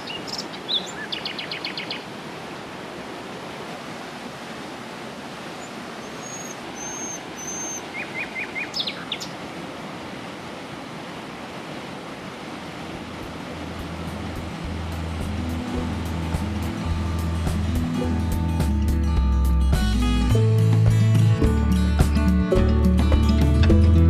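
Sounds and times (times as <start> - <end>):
bird chirping: 0.0 - 2.0, 5.6 - 9.4
river rushing: 0.0 - 24.0.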